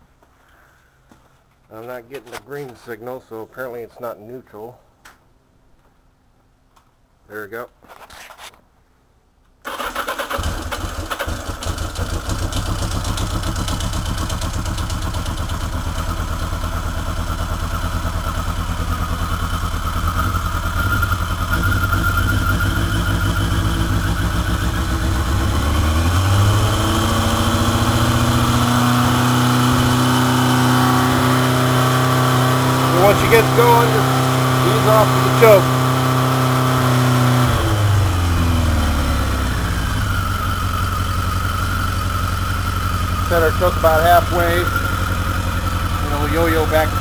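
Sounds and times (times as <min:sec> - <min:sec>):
motorcycle engine starting and idling: 0:09.6 - 0:47.0.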